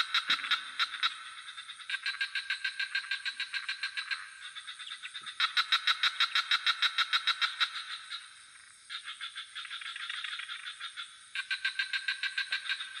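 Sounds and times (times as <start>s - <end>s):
frogs calling in pulsed trills: 0.0s - 13.0s.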